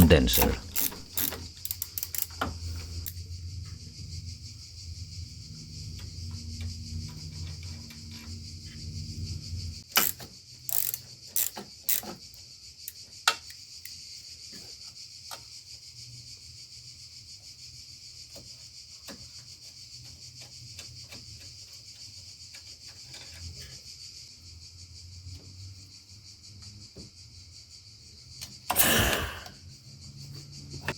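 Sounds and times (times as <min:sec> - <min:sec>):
hand tools clicking on bolts: 0:00.0 - 0:02.5, 0:09.9 - 0:12.2, 0:28.7 - 0:29.5
crickets chirring: 0:00.0 - 0:30.9.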